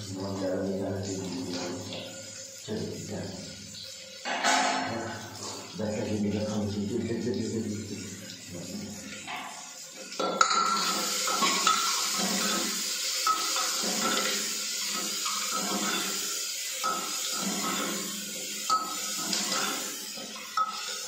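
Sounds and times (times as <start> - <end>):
food sizzling in a pot: 8.0 - 21.0
metal ladle scraping a pot: 10.6 - 18.1.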